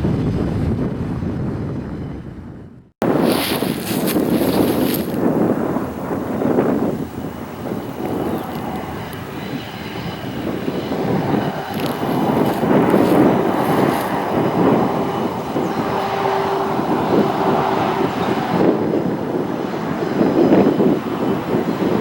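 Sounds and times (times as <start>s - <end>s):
freight train rumbling past: 3.0s - 22.0s.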